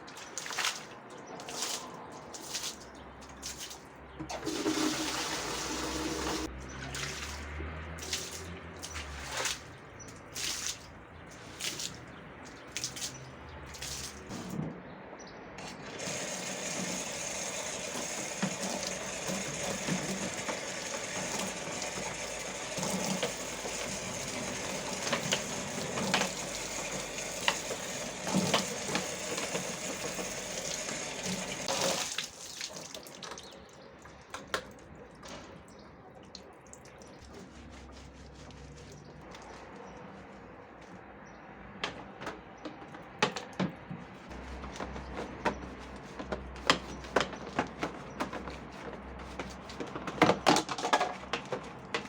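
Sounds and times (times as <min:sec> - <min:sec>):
water running: 0:04.3 - 0:07.4, 0:15.6 - 0:33.7
knocks and clatters of handling: 0:41.7 - 0:52.0.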